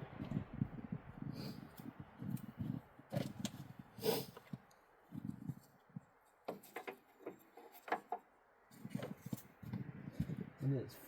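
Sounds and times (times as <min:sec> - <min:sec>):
handling knocks and rubbing: 0:02.3 - 0:10.6.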